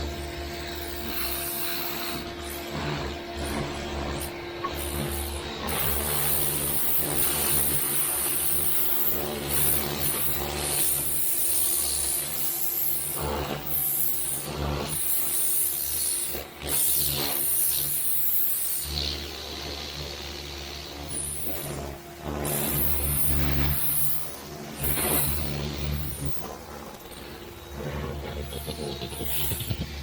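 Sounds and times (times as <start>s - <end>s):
pressure washer pump humming: 0.0s - 10.9s, 19.0s - 30.0s.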